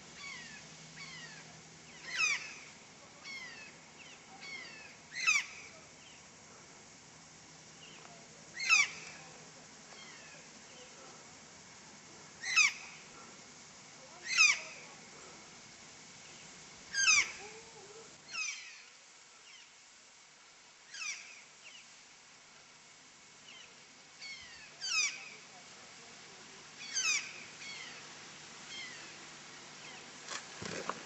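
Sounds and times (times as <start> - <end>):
bird giving falling calls: 0.2 - 5.8, 8.6 - 9.3, 14.2 - 14.9, 16.3 - 17.7, 26.8 - 29.2.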